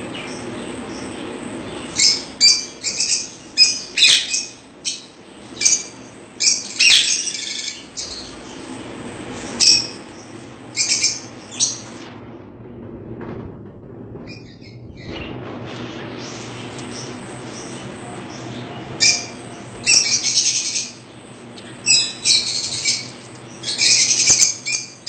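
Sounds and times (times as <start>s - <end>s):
small birds chirping: 0.0s - 8.8s, 9.5s - 12.0s, 16.3s - 25.0s.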